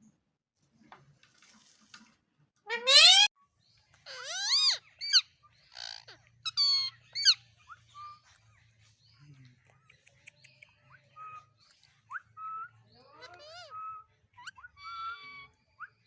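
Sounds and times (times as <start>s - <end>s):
budgerigars chirping and warbling: 4.0s - 12.2s, 12.9s - 16.0s
sharp bird calls: 4.1s - 8.4s.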